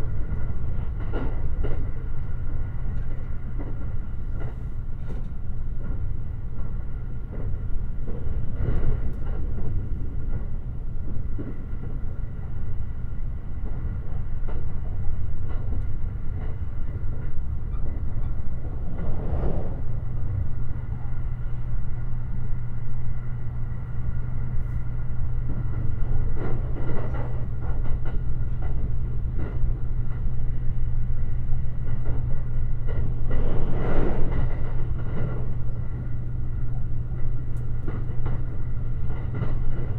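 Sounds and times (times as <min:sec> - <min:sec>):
electric train running at speed: 0:00.0 - 0:39.9.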